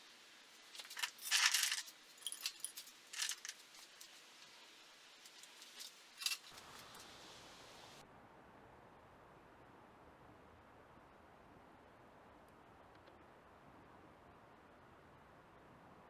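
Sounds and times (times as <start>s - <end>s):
metal cans clinking and rattling: 0.7s - 4.2s, 5.2s - 7.0s.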